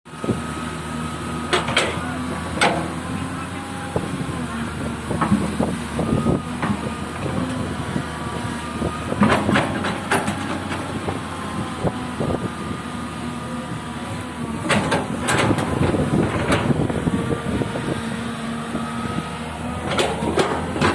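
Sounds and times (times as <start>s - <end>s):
excavator diesel engine running: 0.1s - 20.9s
metallic clanks and knocks: 2.6s - 3.0s, 19.9s - 20.9s.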